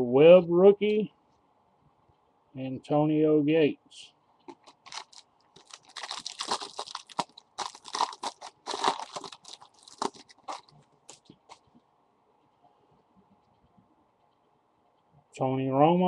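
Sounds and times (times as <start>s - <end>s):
cards clicking and rustling: 4.5s - 11.7s
wrapper crinkling: 4.5s - 11.8s.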